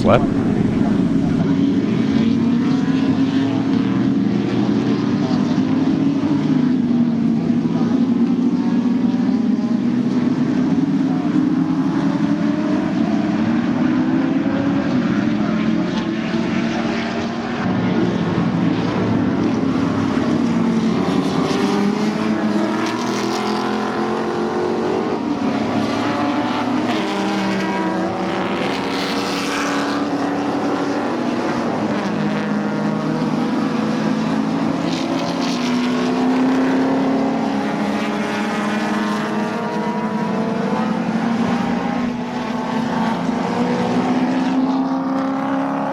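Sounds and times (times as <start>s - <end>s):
racing car engines: 0.0s - 45.9s.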